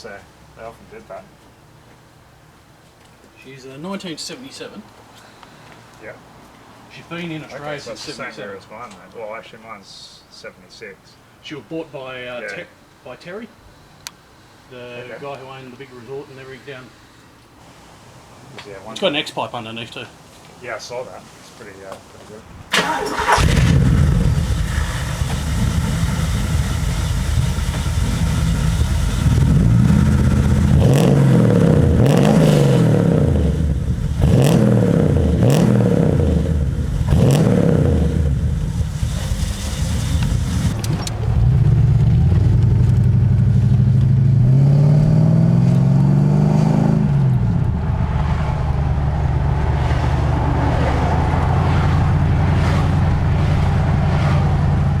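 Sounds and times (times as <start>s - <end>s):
car engine revving: 22.7s - 55.0s.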